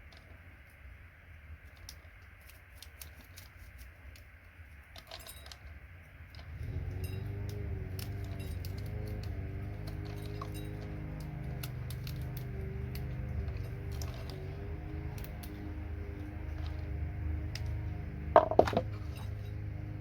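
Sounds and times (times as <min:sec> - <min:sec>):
metallic clicks of scrap metal: 0:06.3 - 0:20.0.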